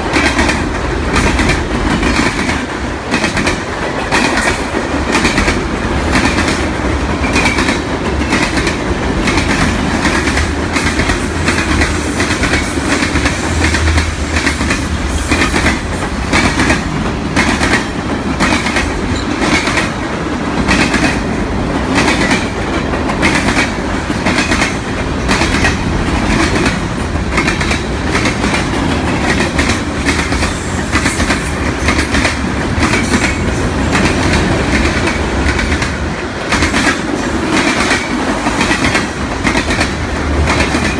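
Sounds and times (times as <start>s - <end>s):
train wheels clicking over rail joints: 0.0s - 40.9s.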